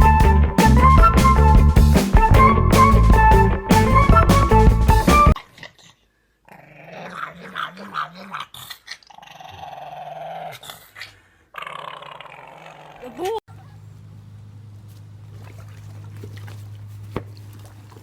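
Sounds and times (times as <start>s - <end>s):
background music: 0.0s - 5.4s
dog growling: 5.4s - 13.3s.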